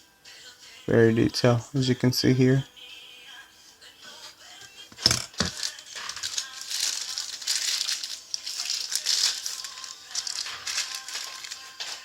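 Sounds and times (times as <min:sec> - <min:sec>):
plastic packaging crinkling: 0:05.0 - 0:12.0.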